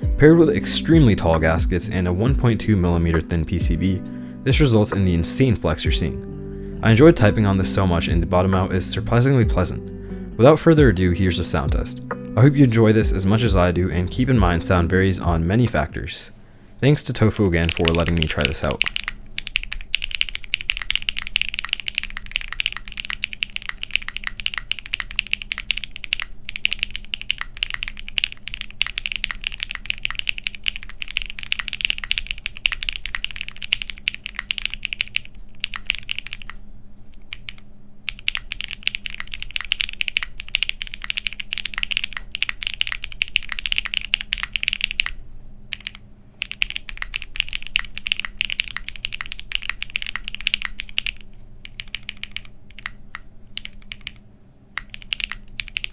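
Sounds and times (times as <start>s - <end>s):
fast typing on mechanical keyboard: 17.6s - 36.6s, 37.2s - 55.9s.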